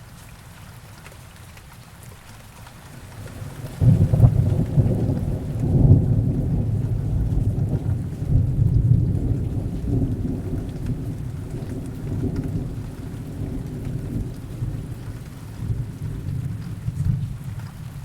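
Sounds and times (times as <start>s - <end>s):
heavy rain: 0.0s - 18.0s
distant thunder rumbling: 3.2s - 18.0s.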